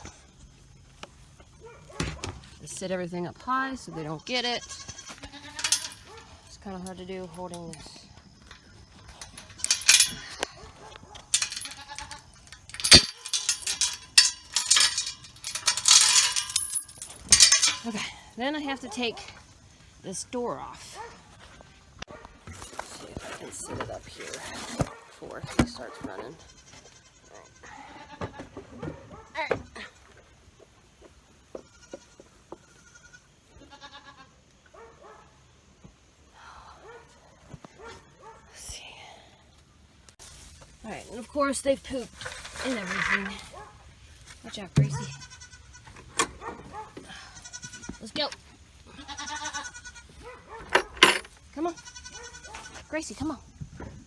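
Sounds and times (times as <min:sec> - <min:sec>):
gear rattling and clinking: 0:05.3 - 0:08.0, 0:08.9 - 0:19.2, 0:50.7 - 0:51.4
goats bleating: 0:32.8 - 0:34.3, 0:48.9 - 0:50.2.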